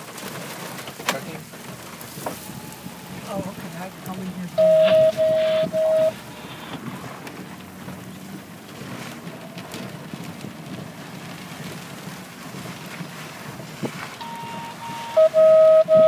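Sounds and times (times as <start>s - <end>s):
wind buffeting microphone: 0.6s - 16.0s
faint steady tone: 2.2s - 6.2s, 14.2s - 16.0s
loud electronic beeps: 4.6s - 6.2s, 14.2s - 16.0s.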